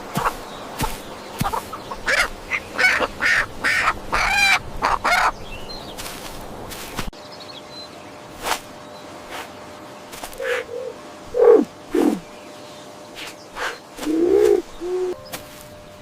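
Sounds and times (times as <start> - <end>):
chickens clucking: 0.1 - 5.4.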